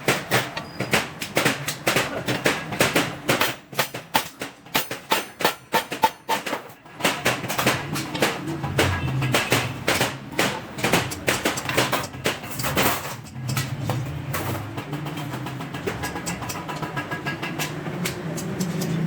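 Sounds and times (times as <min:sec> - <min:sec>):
hammer striking steel sheet: 0:00.0 - 0:13.8.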